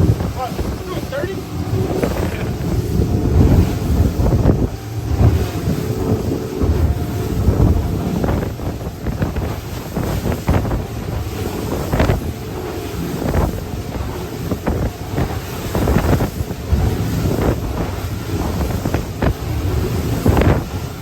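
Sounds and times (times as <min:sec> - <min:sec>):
boat engine rumble: 0:00.0 - 0:21.0
rushing water: 0:00.0 - 0:21.0
water surging against boat: 0:00.0 - 0:21.0
wind buffeting microphone: 0:00.0 - 0:21.0.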